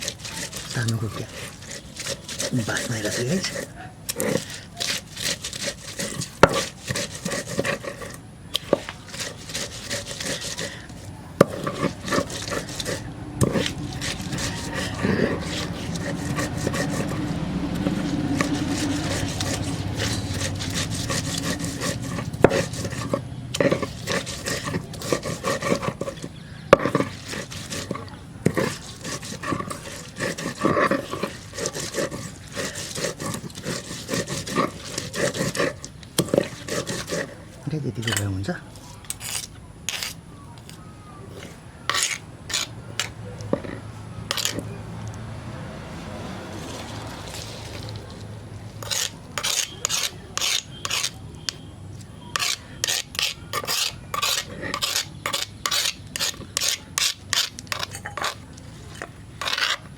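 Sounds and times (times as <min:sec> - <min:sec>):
rubbing and scraping: 0:00.0 - 0:45.2, 0:45.8 - 0:59.9.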